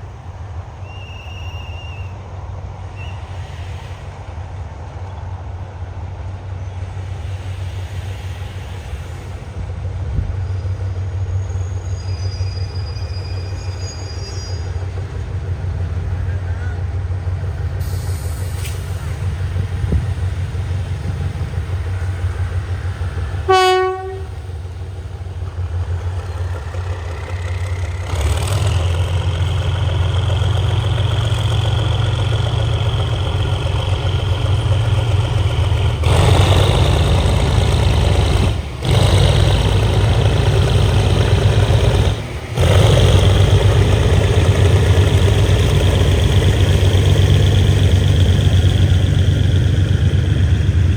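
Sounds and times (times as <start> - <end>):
train engine rumble: 0.0 - 50.9
train horn blast: 23.4 - 24.5.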